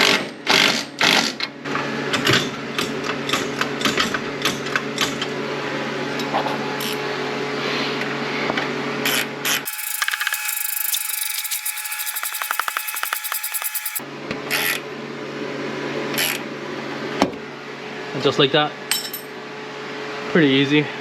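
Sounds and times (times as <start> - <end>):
fast buzzing power tool: 9.6 - 14.0
ratcheting clicks: 9.7 - 14.0
steady hum: 9.7 - 14.0.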